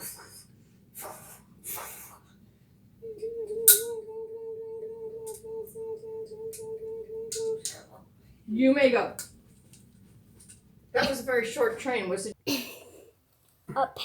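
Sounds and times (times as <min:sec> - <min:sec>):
breathy hisses: 0:00.0 - 0:03.1
person humming steady note: 0:03.0 - 0:08.4.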